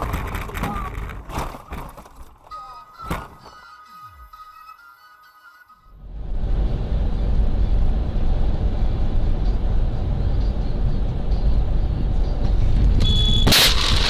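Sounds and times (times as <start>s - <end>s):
car road and engine rumble: 5.9s - 14.0s.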